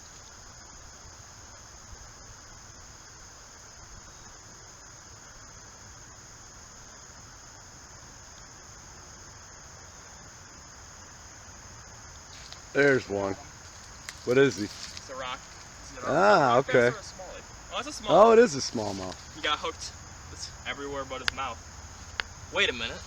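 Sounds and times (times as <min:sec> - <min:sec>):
crickets trilling: 0:00.0 - 0:23.0
low background hum: 0:09.8 - 0:23.0.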